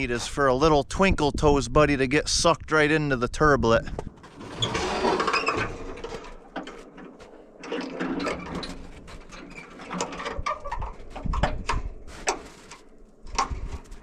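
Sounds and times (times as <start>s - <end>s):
truck hood clunks and scrapes: 3.9s - 14.0s.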